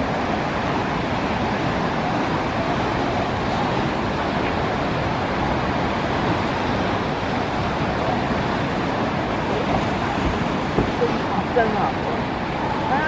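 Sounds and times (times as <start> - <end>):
ocean surf: 0.0 - 13.0
wind: 0.0 - 13.0.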